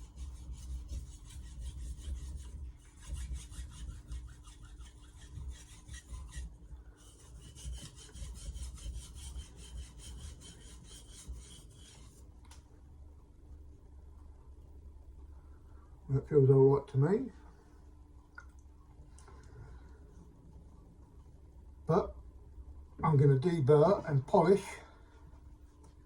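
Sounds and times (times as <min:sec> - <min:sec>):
knife scraping on whetstone: 0:00.0 - 0:12.2.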